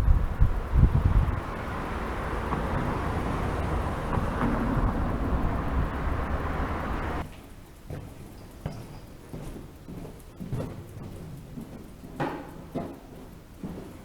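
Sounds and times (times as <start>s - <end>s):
wind over microphone: 0.0s - 7.2s
bicycle rolling noise: 0.0s - 8.7s.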